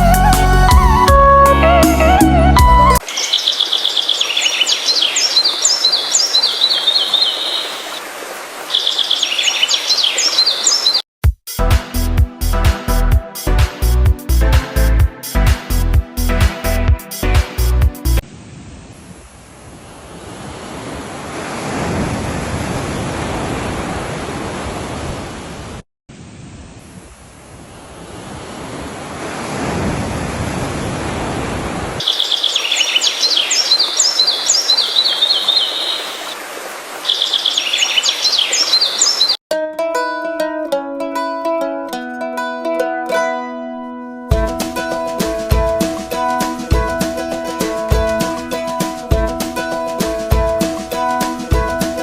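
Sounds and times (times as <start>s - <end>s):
songbird chirping: 3.0s - 8.0s, 8.7s - 11.1s, 32.0s - 36.4s, 37.0s - 39.4s
outdoor background hiss: 3.0s - 10.9s
sea surf washing: 18.3s - 39.2s, 44.3s - 52.0s.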